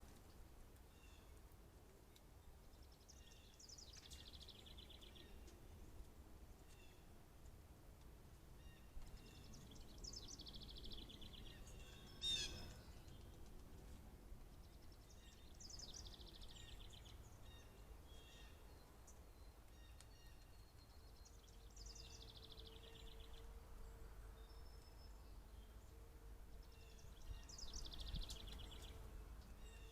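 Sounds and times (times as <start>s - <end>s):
songbird trilling: 10.0s - 12.9s.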